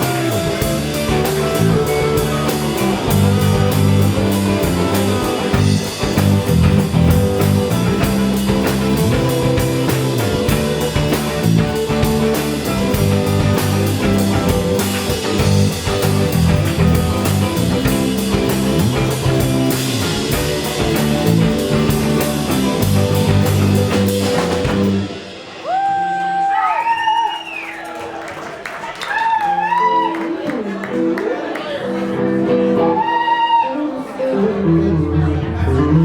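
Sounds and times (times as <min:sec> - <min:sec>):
drum kit beat: 0:00.0 - 0:26.7
live rock band playing: 0:00.0 - 0:26.9, 0:29.5 - 0:36.0.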